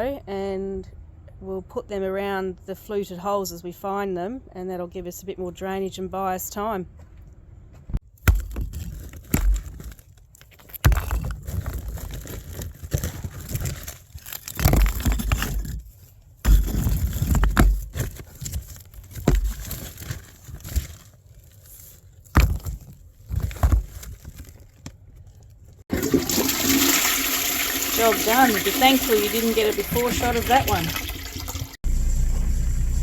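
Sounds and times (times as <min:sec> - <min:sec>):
digging in sandy ground: 0:08.0 - 0:25.6
concrete chunks knocking: 0:08.1 - 0:15.9.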